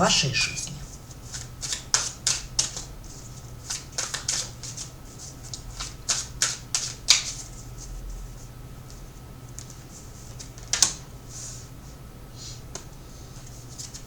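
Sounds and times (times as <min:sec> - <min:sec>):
cards being shuffled: 0:01.3 - 0:02.8, 0:03.6 - 0:04.9.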